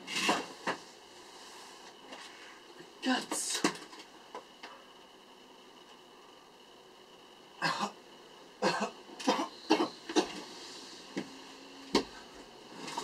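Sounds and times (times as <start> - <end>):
person coughing: 8.6 - 10.4.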